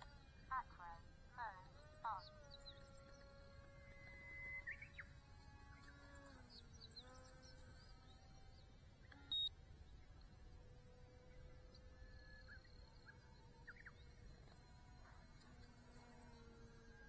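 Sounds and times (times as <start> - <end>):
bird chirps: 4.0 - 5.2, 5.8 - 10.1.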